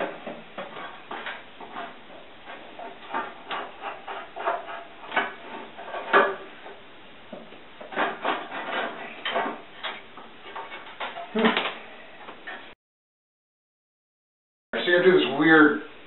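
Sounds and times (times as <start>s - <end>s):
knocks and clatter of saw table: 0.0s - 12.7s.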